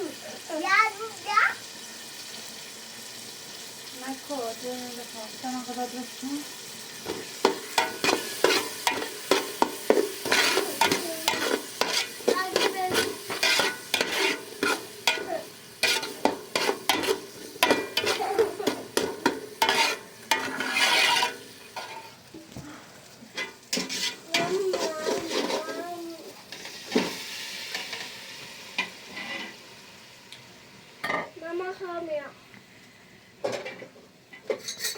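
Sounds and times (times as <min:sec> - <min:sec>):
food frying sizzle: 0:00.0 - 0:34.9
metal utensil scraping a pot: 0:07.0 - 0:22.2, 0:23.4 - 0:25.8, 0:29.1 - 0:29.6, 0:34.5 - 0:34.9.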